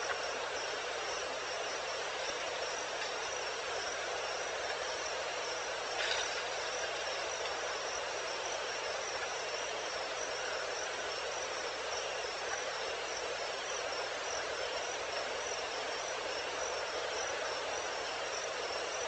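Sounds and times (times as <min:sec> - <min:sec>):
crickets chirping: 0:00.0 - 0:19.0
night insect ambience hiss: 0:00.0 - 0:19.0.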